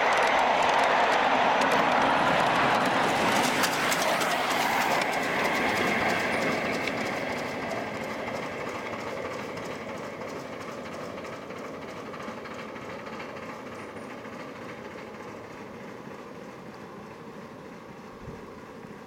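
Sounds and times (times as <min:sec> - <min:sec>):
miniature steam train rolling: 0:00.0 - 0:19.0.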